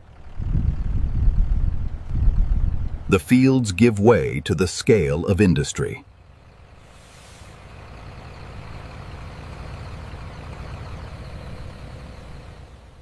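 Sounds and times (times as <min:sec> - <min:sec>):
heavy vehicle engine rumbling: 0:00.0 - 0:13.0
brief hiss: 0:06.8 - 0:07.6.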